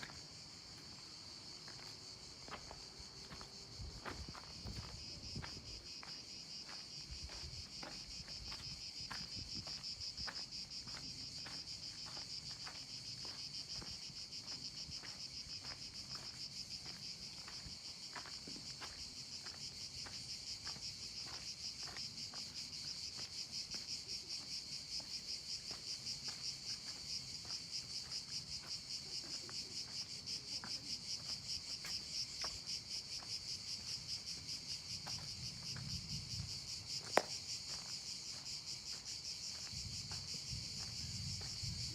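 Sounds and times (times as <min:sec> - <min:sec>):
high insect chorus: 0:00.0 - 0:41.9
footsteps: 0:01.7 - 0:19.0.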